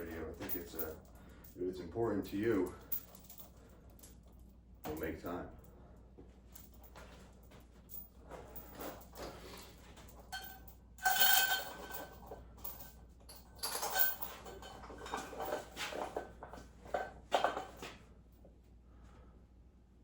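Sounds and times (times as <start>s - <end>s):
short metallic ring: 10.3s - 12.0s.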